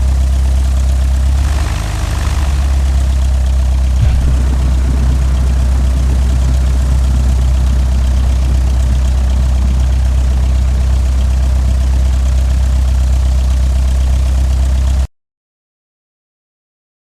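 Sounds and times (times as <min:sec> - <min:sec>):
propeller noise: 0:00.0 - 0:15.1
airplane piston engine drone: 0:01.5 - 0:15.0.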